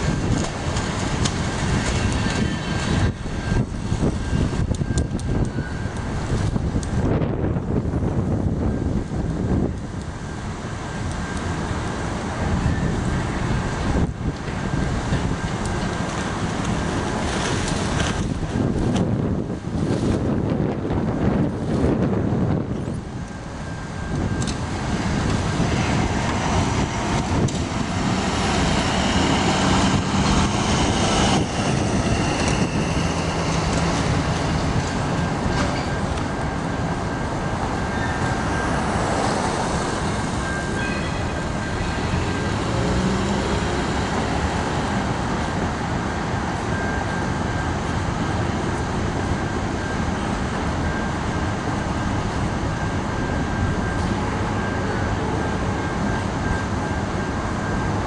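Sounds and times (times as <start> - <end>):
train wheels rumbling and clattering: 0.0 - 58.0
thin high tone: 35.0 - 43.8.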